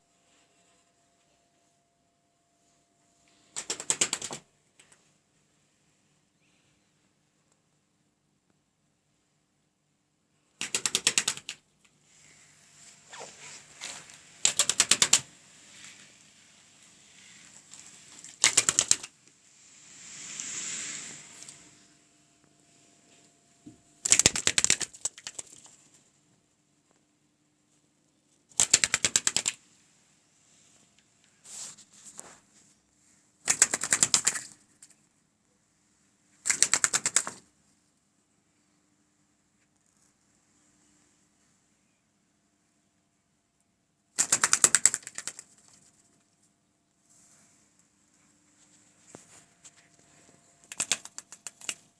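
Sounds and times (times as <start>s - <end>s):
bird wings flapping: 3.6s - 4.4s, 10.6s - 11.6s, 13.1s - 16.0s, 17.2s - 19.2s, 24.0s - 25.8s, 28.6s - 29.6s, 33.5s - 34.6s, 36.5s - 37.4s, 44.2s - 45.9s, 50.6s - 51.9s
bird rapid rattling: 14.4s - 15.3s, 18.3s - 19.1s, 24.0s - 25.8s, 44.2s - 45.8s, 50.6s - 51.9s.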